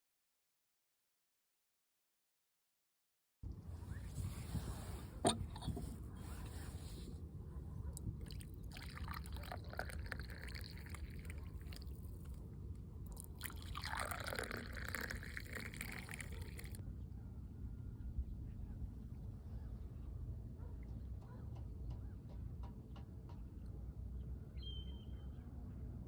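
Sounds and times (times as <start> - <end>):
liquid pouring and trickling: 5.2 - 5.9, 8.0 - 12.4, 13.0 - 16.8.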